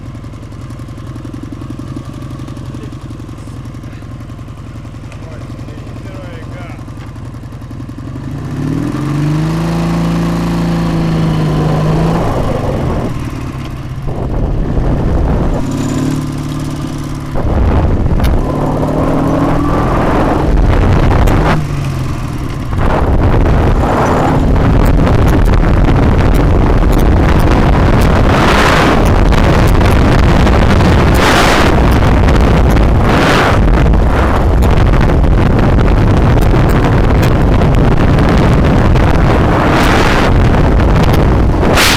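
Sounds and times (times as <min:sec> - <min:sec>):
motorcycle engine revving: 0:00.0 - 0:41.9
wind rushing over microphone: 0:09.1 - 0:41.9.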